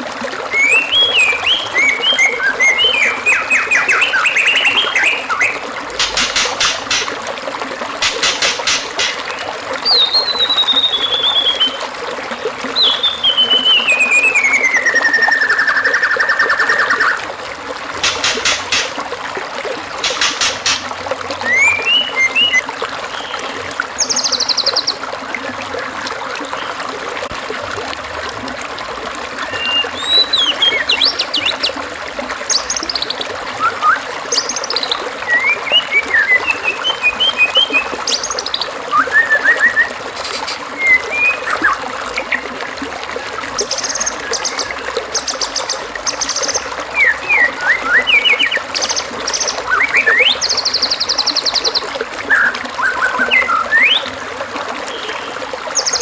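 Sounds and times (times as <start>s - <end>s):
running water trickling: 0.0s - 56.0s
bird singing whistles and trills: 0.5s - 5.6s, 9.8s - 11.8s, 12.8s - 17.2s, 21.4s - 22.6s, 29.4s - 31.8s, 32.5s - 41.8s, 43.6s - 54.2s.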